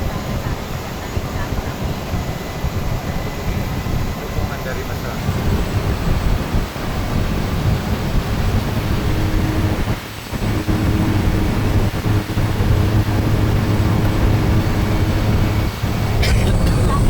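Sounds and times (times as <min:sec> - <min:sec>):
light aircraft engine drone: 0:00.0 - 0:17.0
loud rumbling noise: 0:00.0 - 0:17.0.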